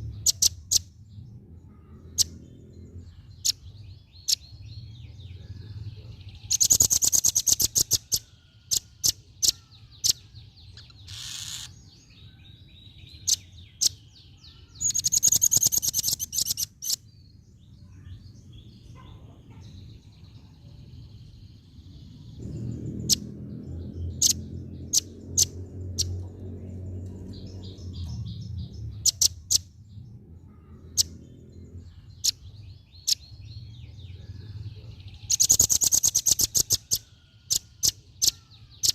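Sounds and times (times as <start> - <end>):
bird chips and twittering: 0.0 - 38.9
low steady rumble: 17.2 - 35.3.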